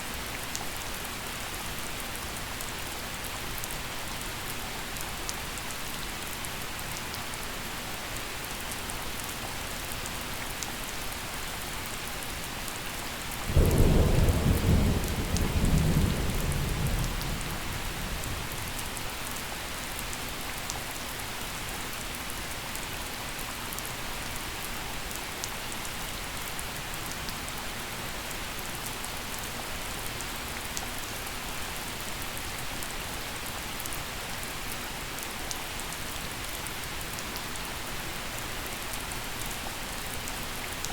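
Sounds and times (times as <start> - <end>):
gentle rain falling: 0.0 - 40.9
thunder rumbling: 13.5 - 18.9.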